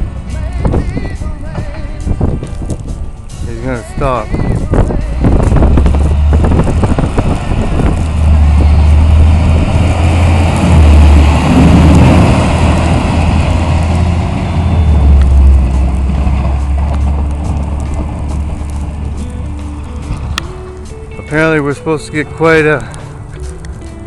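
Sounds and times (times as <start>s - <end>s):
snow plow truck engine rumble: 0.0s - 24.0s.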